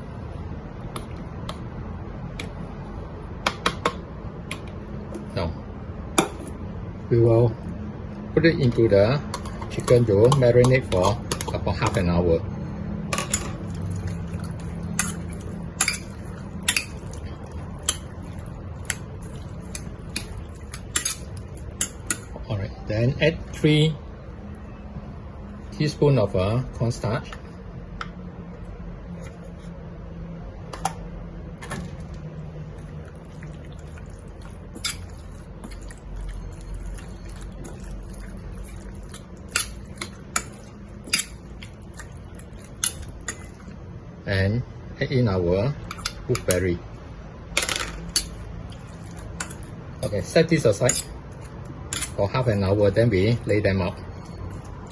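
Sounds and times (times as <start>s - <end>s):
steady low hum: 0.0s - 54.9s
wet mixing of chicken: 13.6s - 22.6s, 31.6s - 44.0s, 48.1s - 54.9s.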